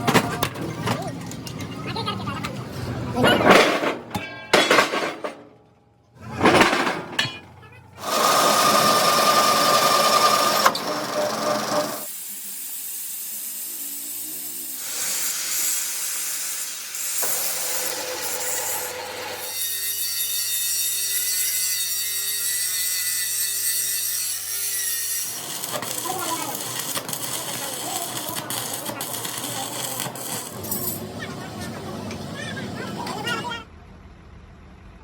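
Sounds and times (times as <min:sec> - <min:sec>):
power tool machining noise: 0:08.0 - 0:32.9.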